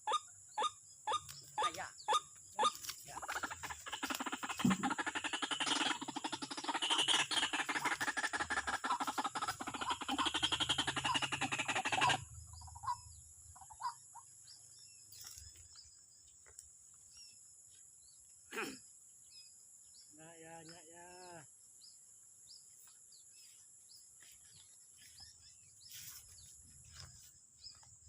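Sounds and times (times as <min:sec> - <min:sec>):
faint bird chirps: 0:00.0 - 0:28.0
bird rattling call: 0:00.6 - 0:14.2.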